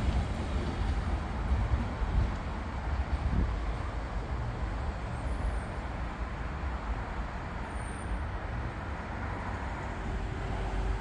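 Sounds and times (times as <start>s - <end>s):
train rolling past: 0.0s - 5.0s.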